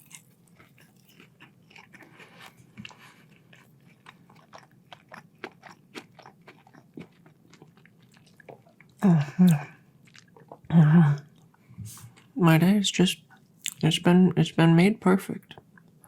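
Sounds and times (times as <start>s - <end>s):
chewing crispy food: 0.0s - 10.6s
person making voiced sounds: 9.0s - 9.8s, 10.7s - 11.3s.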